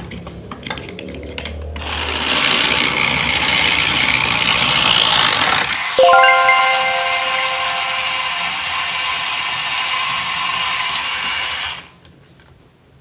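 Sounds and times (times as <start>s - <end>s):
bell-like chime: 6.0s - 9.0s.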